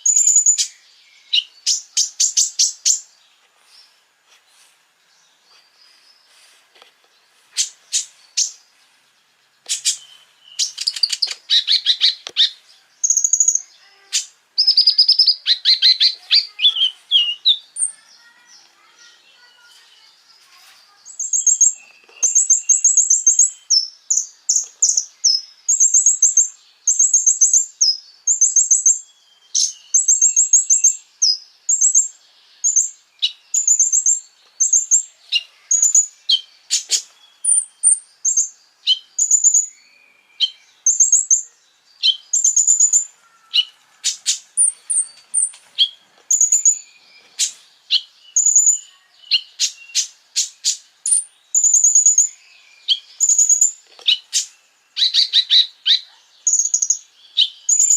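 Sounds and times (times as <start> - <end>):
small songbird trilling: 0.0 - 3.1, 7.5 - 8.6, 9.6 - 19.7, 21.0 - 57.9.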